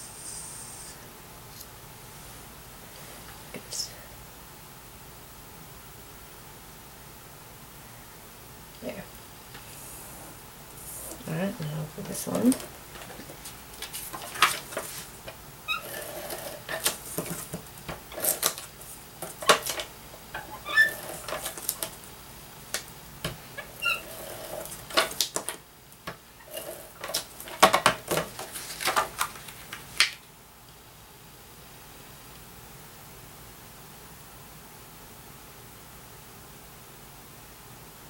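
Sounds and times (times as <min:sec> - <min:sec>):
paper rustling and tapping: 0:12.4 - 0:15.4, 0:16.7 - 0:19.9, 0:27.0 - 0:30.2
faint short squeaks: 0:15.7 - 0:16.2, 0:23.6 - 0:24.3.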